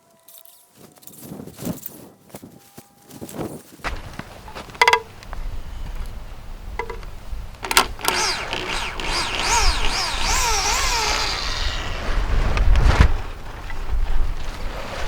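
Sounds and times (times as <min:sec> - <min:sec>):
saw cutting through wood: 0:08.0 - 0:12.4.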